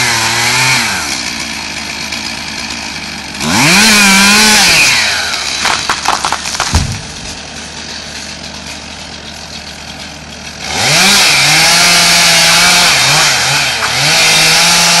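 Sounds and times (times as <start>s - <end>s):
chainsaw idling and revving: 0.0s - 15.0s
cracks: 5.2s - 8.8s, 13.7s - 14.0s
heavy thump: 6.6s - 7.5s.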